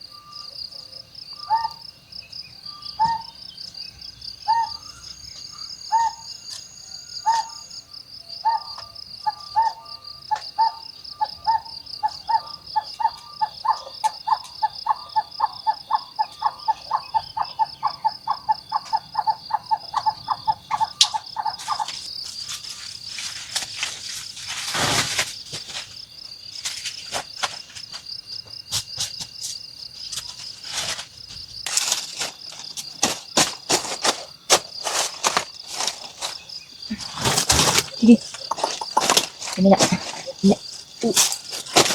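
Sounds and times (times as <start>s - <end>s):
insects trilling: 0.0s - 41.9s
animal calling repeated notes: 1.4s - 1.8s, 5.8s - 7.8s, 8.4s - 22.0s, 37.9s - 41.2s.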